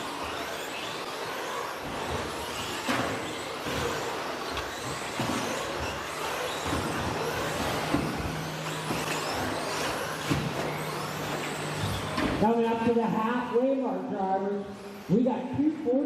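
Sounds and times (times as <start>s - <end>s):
electric motor whine: 0.0s - 12.4s.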